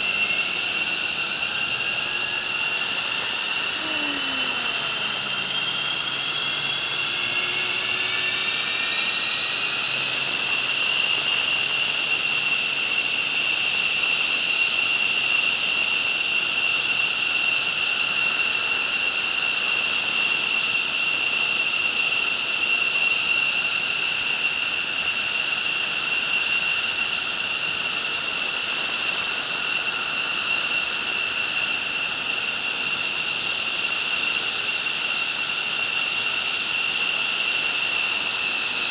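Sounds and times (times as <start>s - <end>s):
jet engine whining: 0.0s - 13.4s, 34.8s - 38.9s
roar of air: 3.2s - 8.5s.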